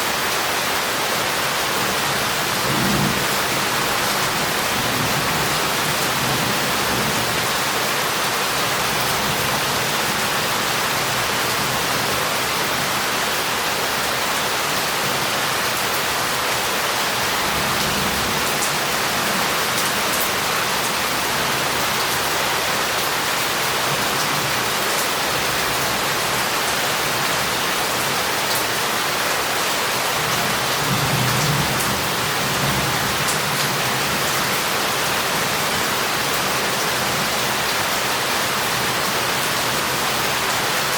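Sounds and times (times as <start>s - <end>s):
heavy rain on a street: 0.0s - 40.9s
distant thunder rumbles: 2.4s - 7.5s.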